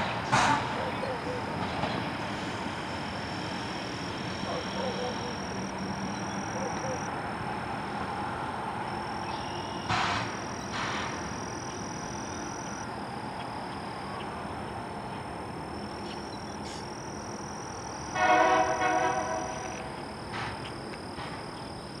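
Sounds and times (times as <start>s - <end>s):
train rumbling along track: 0.0s - 9.2s, 9.8s - 15.8s, 18.0s - 22.0s
train horn blast: 18.1s - 19.9s.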